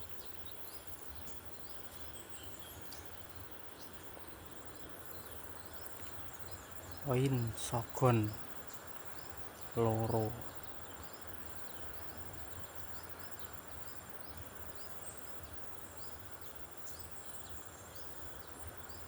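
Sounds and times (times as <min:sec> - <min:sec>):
insect trill: 0:00.0 - 0:14.8.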